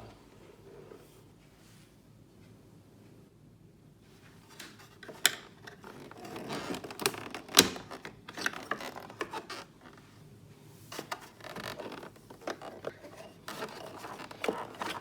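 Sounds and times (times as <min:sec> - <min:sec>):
plastic scraping and rubbing: 0:04.5 - 0:10.0, 0:10.9 - 0:15.0.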